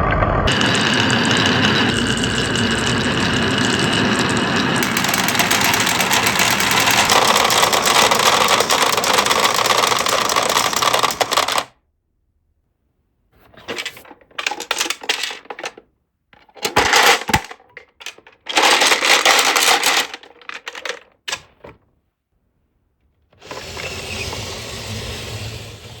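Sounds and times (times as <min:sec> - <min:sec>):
marbles rattling down wooden track: 0:00.5 - 0:11.7, 0:13.6 - 0:15.8, 0:16.4 - 0:21.4.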